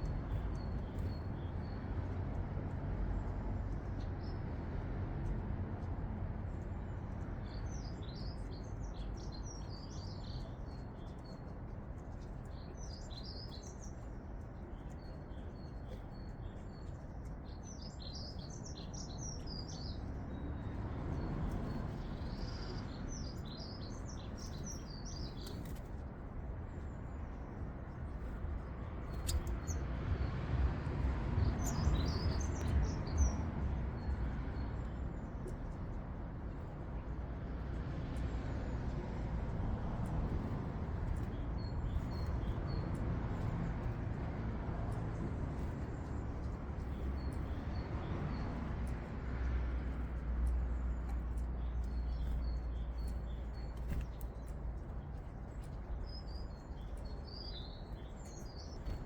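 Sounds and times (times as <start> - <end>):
distant traffic rumble: 16.4 - 59.0.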